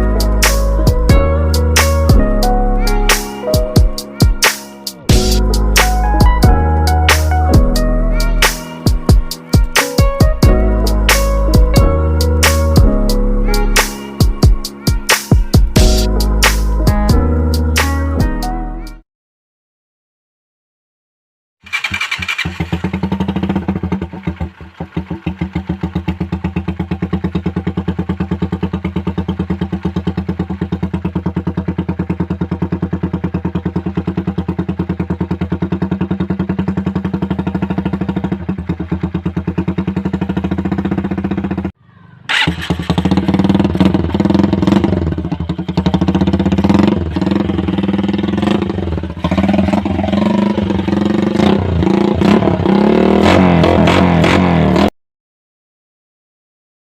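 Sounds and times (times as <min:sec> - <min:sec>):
motorcycle engine revving: 0:21.6 - 0:55.0
motorcycle engine idling: 0:21.7 - 0:52.0.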